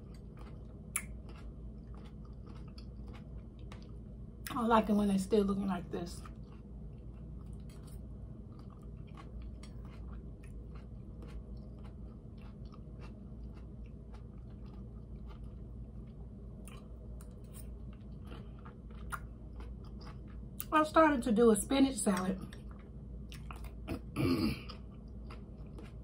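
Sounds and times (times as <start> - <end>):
crunchy chewing: 0.0 - 4.1, 6.1 - 20.7, 22.4 - 26.0
steady low hum: 0.0 - 26.0.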